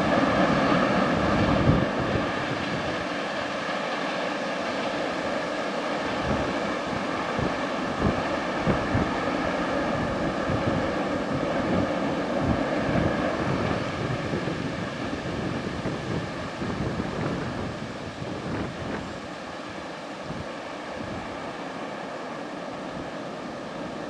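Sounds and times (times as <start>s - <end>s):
wind buffeting microphone: 0.0s - 3.1s, 6.0s - 21.4s.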